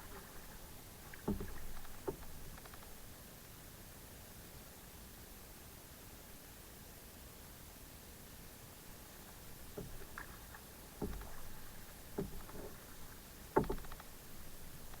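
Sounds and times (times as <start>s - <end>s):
kayak paddle splashing: 0.0s - 3.1s, 9.3s - 15.0s.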